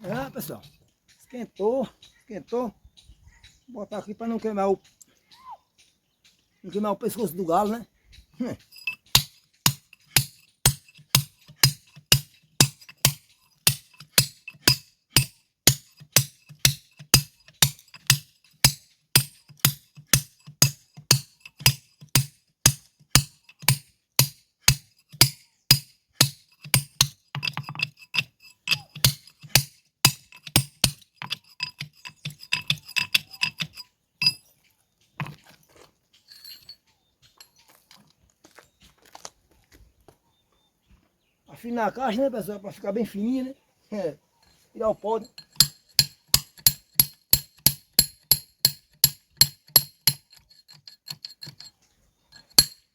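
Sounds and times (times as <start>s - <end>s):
light metal clinks: 8.4s - 22.3s, 25.0s - 34.6s, 36.1s - 37.7s, 44.4s - 52.9s.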